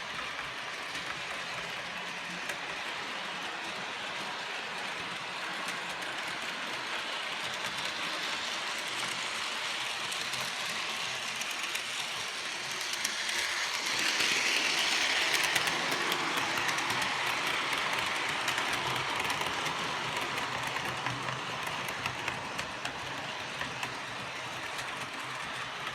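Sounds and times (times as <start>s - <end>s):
model train motor hum: 0.0s - 25.9s
wheels clicking on rail joints: 0.0s - 25.9s.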